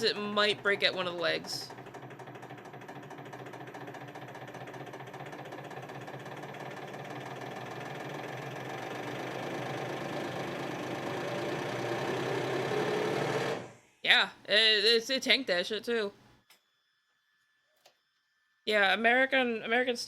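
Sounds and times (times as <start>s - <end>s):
hydraulic press motor and pump: 0.0s - 13.8s.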